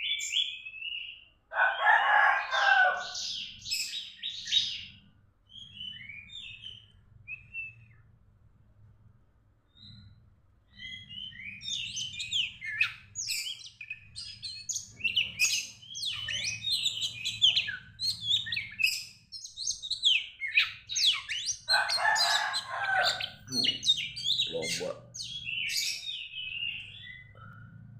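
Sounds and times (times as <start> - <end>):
bird singing chirps and whistles: 0.0 - 1.3, 5.5 - 8.1, 10.7 - 27.4.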